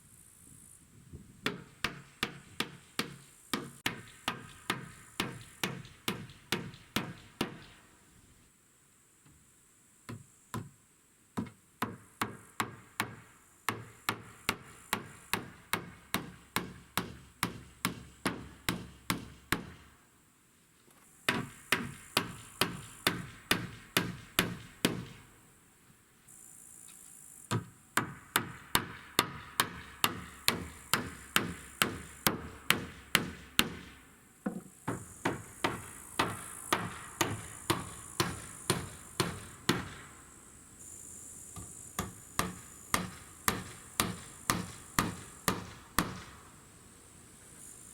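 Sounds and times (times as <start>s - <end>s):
hammer driving nails into wood: 1.4s - 7.8s, 11.4s - 19.8s, 21.3s - 25.2s, 27.5s - 40.1s, 41.6s - 46.4s.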